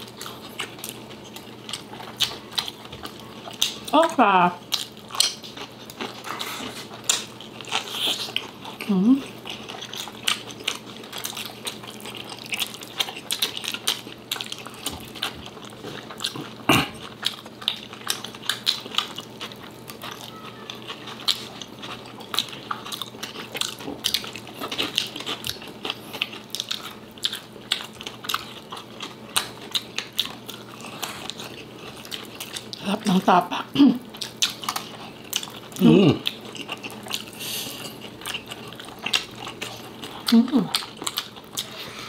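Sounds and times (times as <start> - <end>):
wet chewing and lip-smacking: 0.0 - 42.0.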